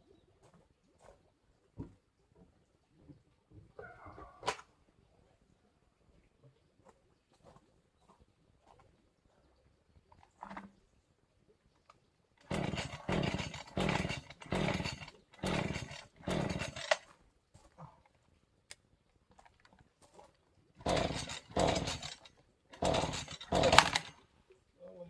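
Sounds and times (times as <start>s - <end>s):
hand saw cutting: 12.4s - 17.1s, 20.8s - 24.2s.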